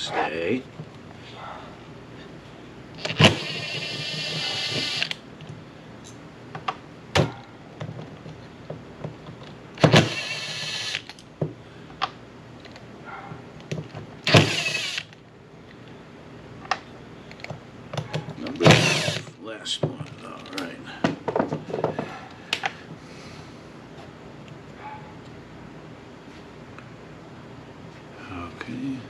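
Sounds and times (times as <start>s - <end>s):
handheld power tool whirring: 3.0s - 5.2s, 9.8s - 11.2s, 14.2s - 15.2s, 18.6s - 19.3s.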